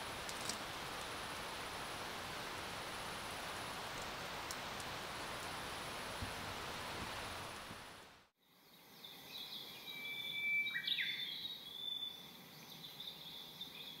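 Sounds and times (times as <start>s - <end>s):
birdsong high whistled notes: 9.3s - 12.2s.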